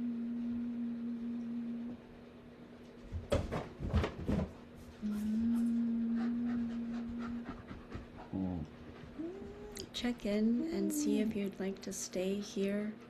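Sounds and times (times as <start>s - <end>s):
steady low tone: 0.0s - 2.2s, 5.0s - 7.7s
breathy panting noises: 6.1s - 9.6s, 11.8s - 13.0s.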